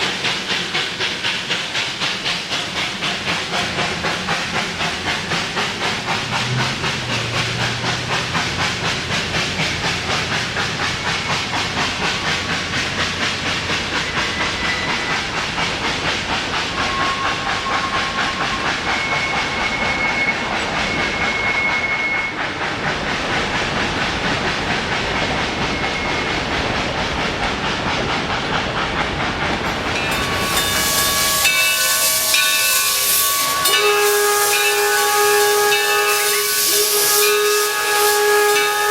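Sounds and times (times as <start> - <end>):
loud hissing steam: 0.0 - 38.9
steam locomotive chuffing: 0.0 - 38.9
steam whistle chord: 30.0 - 38.9.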